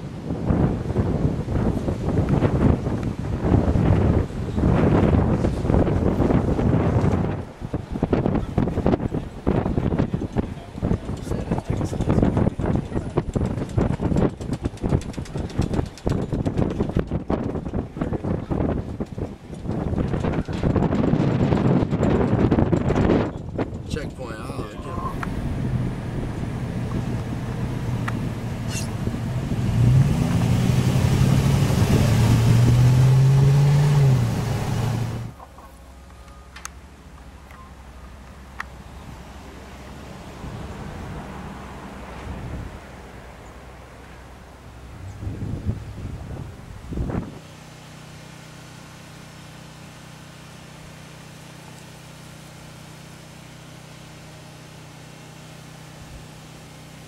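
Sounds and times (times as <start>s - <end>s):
wind noise: 0.0s - 35.4s, 40.4s - 43.0s, 44.8s - 47.4s
engine humming: 0.9s - 57.0s.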